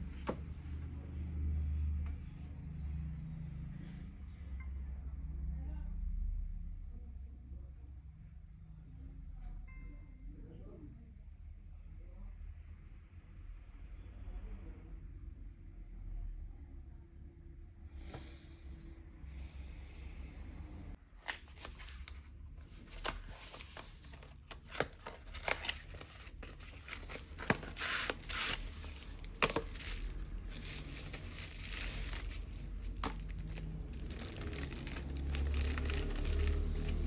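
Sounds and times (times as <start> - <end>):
clicks scrapes and crinkling: 21.2 - 37.0.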